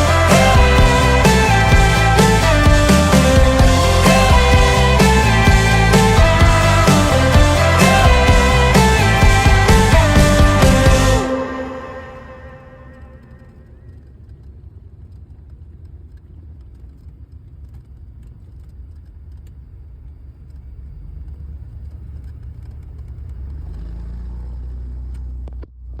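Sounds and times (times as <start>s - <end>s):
aircraft piston engines rumbling: 0.0s - 13.2s.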